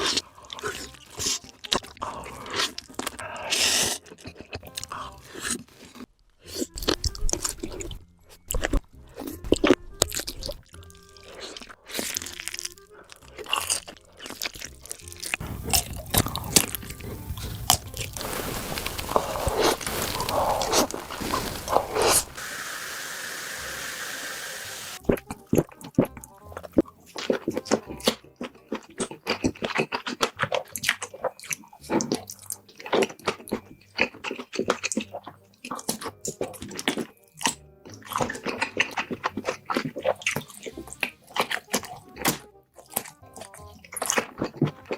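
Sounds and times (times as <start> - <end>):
wet chewing: 0.0 - 44.9
sausage casings snapping in bites: 6.6 - 18.2, 25.1 - 44.9
steady hiss: 17.0 - 25.0.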